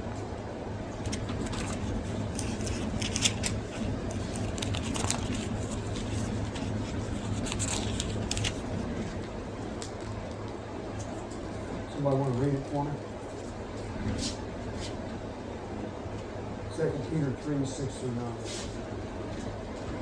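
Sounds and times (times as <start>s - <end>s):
low room hum: 0.0s - 20.0s
paper pages rustling and flicking: 1.0s - 9.3s.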